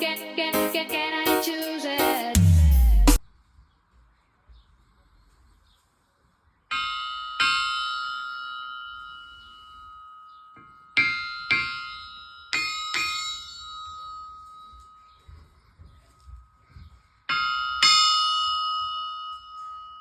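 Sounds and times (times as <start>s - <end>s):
hammer striking anvil: 10.6s - 13.6s.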